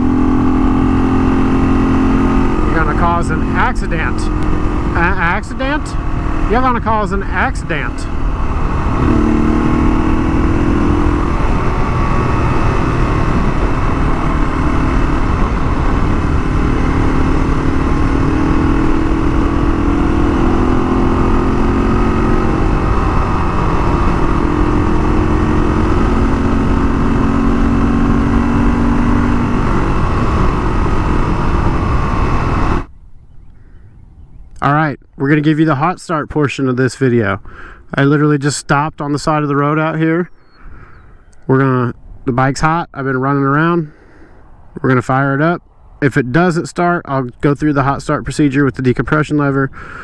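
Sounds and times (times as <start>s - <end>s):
motorcycle engine running: 0.0s - 33.0s
wind rush on microphone: 2.1s - 34.5s.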